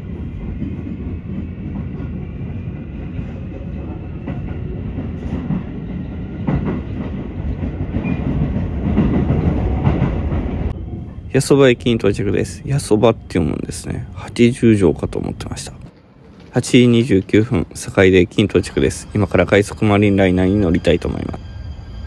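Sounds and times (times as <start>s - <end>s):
train rumbling: 0.0s - 22.0s
rail-joint clacks: 3.0s - 11.1s, 15.0s - 21.6s.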